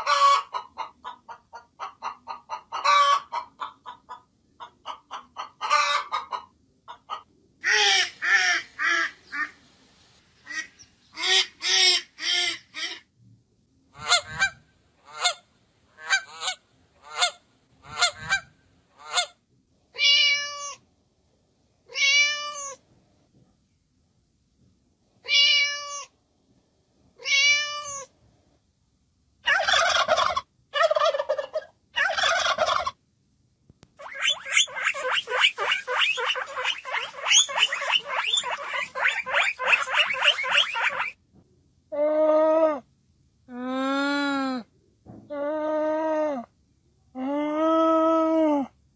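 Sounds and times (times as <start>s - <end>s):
goose honking: 0.0s - 0.5s, 34.0s - 41.2s
cat meowing: 20.0s - 20.8s, 21.9s - 22.8s, 25.2s - 26.1s, 27.2s - 28.1s
guinea pig squeaking: 34.0s - 41.2s.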